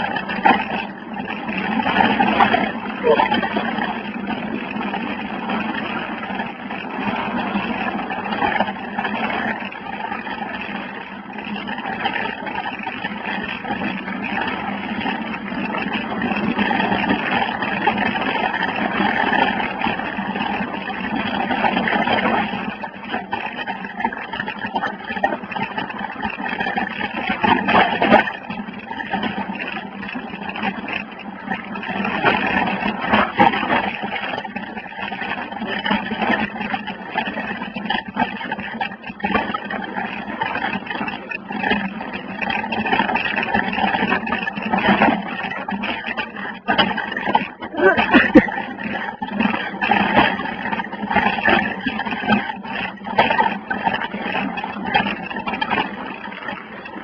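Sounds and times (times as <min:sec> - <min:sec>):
bike rattling over dirt trail: 0:00.0 - 0:57.0.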